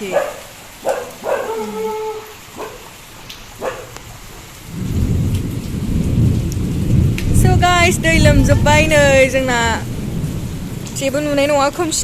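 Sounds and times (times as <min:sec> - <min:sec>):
dog barking: 0:00.0 - 0:03.0, 0:03.6 - 0:04.1
steady rain: 0:00.0 - 0:12.0
low rumble of thunder: 0:04.0 - 0:12.0.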